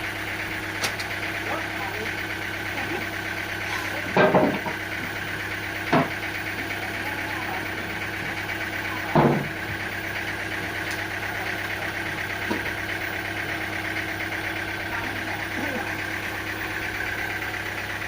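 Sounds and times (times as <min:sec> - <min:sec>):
sawmill machinery humming: 0:00.0 - 0:18.0
heavy knocks: 0:09.1 - 0:09.6.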